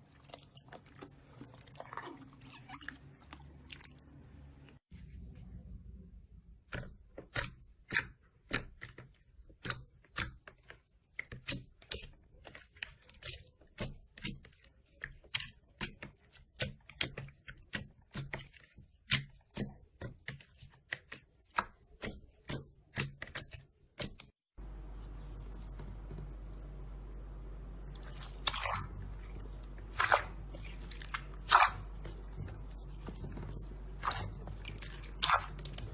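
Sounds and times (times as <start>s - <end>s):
steady low hum: 24.6s - 35.9s.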